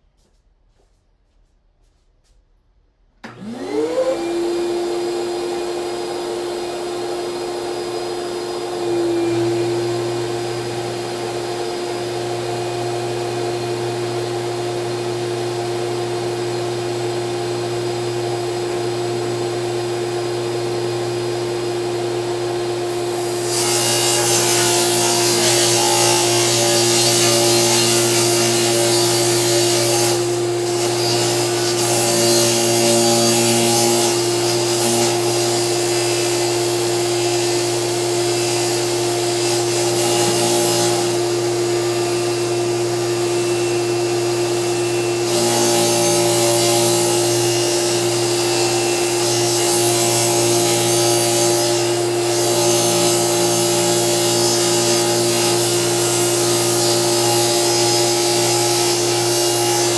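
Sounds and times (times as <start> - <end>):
vacuum running: 3.2 - 51.2, 51.8 - 59.9
table saw ripping plywood: 22.7 - 59.9.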